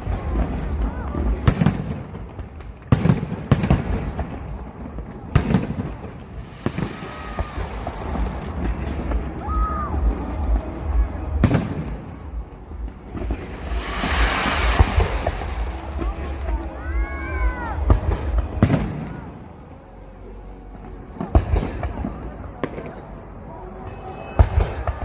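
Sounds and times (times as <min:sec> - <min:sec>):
crowd voices: 0:00.0 - 0:25.0
broad hiss: 0:13.4 - 0:16.5.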